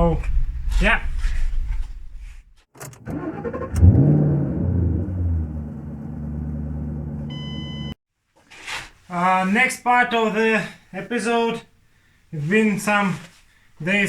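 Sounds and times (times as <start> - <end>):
car engine starting and idling: 2.8 - 8.0
short beep: 7.3 - 8.0.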